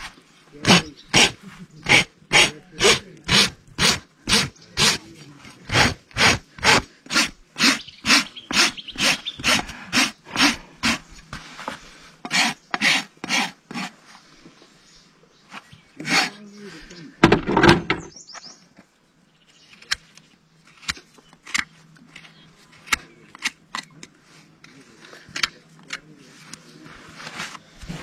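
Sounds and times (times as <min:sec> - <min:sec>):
rasp scraping hoof: 0:00.0 - 0:14.2.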